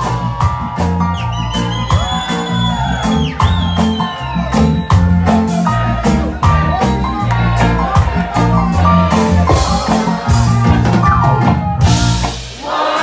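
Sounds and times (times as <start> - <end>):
sliding lead melody: 0.0 - 12.7
reggae band playing: 0.0 - 13.0.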